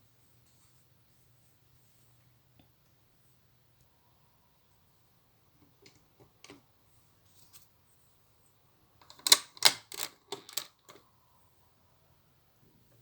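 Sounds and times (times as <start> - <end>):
plastic pieces clicking: 9.0 - 11.0.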